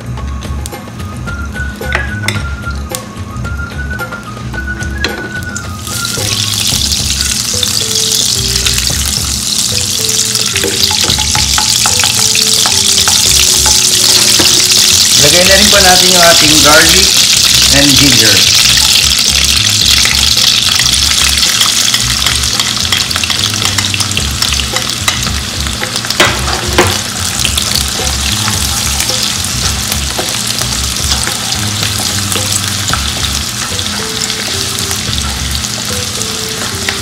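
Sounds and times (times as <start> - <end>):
garlic sizzling in hot oil: 5.0 - 37.0
spatula stirring in wok: 8.9 - 15.2.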